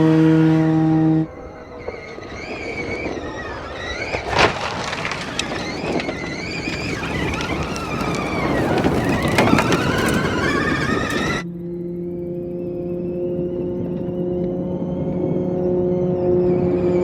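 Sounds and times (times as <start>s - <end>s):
tyre and ground noise: 1.0s - 11.5s.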